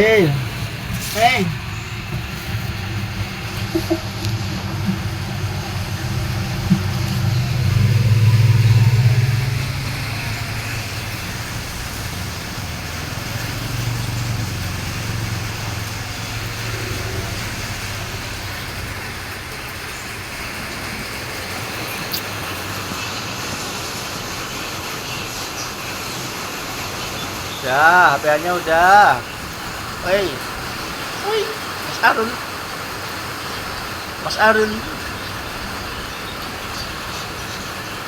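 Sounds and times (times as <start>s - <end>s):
vehicle engine passing: 0.0s - 25.1s.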